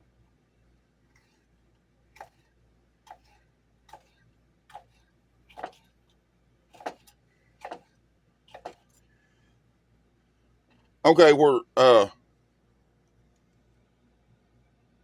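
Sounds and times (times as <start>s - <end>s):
knife chopping on cutting board: 5.6s - 5.8s, 7.6s - 7.9s, 8.5s - 8.9s.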